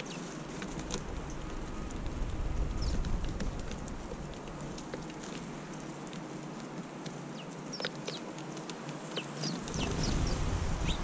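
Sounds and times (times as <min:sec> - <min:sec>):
wind rumble on microphone: 0:00.0 - 0:05.0, 0:09.4 - 0:11.0
birds pecking at seed: 0:00.0 - 0:11.0
small birds chirping: 0:00.0 - 0:11.0.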